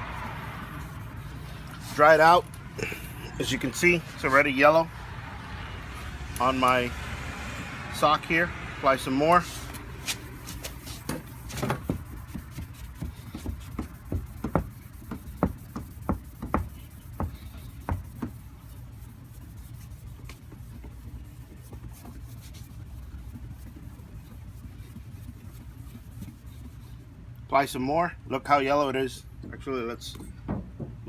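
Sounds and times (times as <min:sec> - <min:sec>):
cloth scraping on plastic lens: 0:09.4 - 0:27.0.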